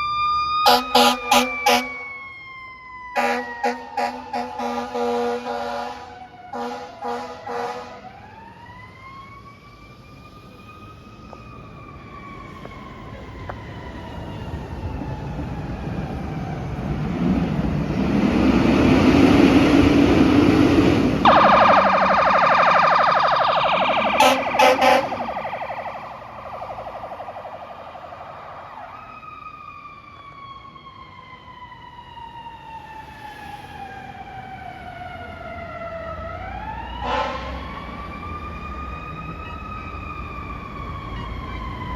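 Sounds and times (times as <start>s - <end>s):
electronic yelp siren: 0.0s - 17.2s, 21.2s - 41.9s
air horn blasts: 0.7s - 2.0s, 3.2s - 8.0s, 21.3s - 25.9s, 37.0s - 37.5s.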